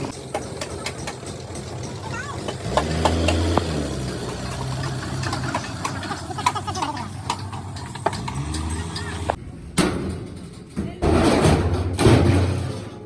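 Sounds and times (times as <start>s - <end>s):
vehicle engine idling: 0.0s - 9.6s
metallic knocks and clanks: 0.0s - 13.0s.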